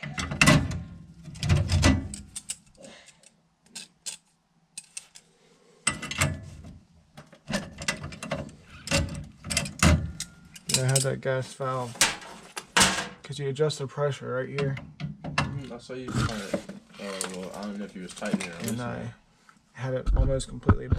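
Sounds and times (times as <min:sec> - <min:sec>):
tools and metal parts clattering: 0:00.0 - 0:05.3, 0:05.9 - 0:06.6, 0:07.2 - 0:11.2, 0:12.0 - 0:13.2, 0:16.6 - 0:18.9.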